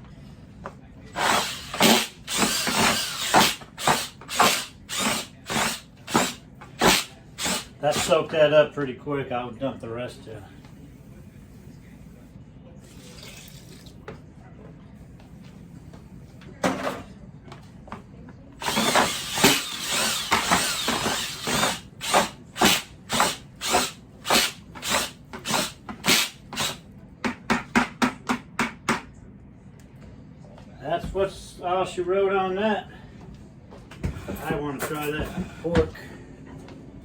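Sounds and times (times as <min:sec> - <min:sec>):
power drill shredding meat: 0:01.1 - 0:08.2, 0:18.6 - 0:26.8.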